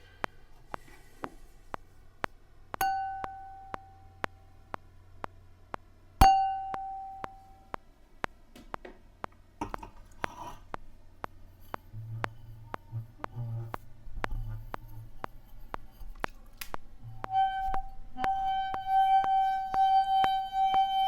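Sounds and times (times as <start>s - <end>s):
steady ticking clicks: 0.0s - 21.0s
wine glass ringing: 2.8s - 4.1s, 6.2s - 7.6s.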